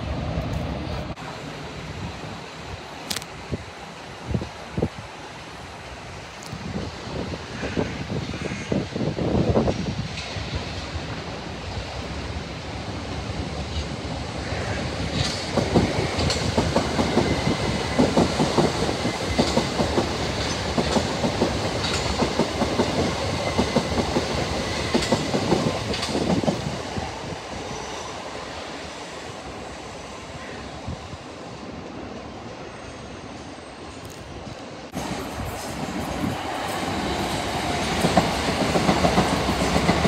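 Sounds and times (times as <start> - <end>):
train wheels clattering over rail joints: 15.0 - 26.8.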